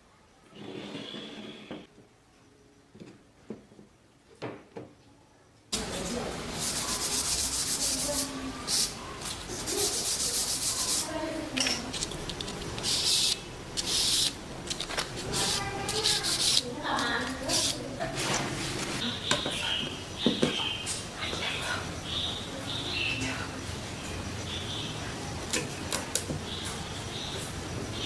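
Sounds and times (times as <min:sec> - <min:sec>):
hand sanding wood: 0:06.6 - 0:08.9, 0:09.6 - 0:11.1, 0:15.2 - 0:16.7.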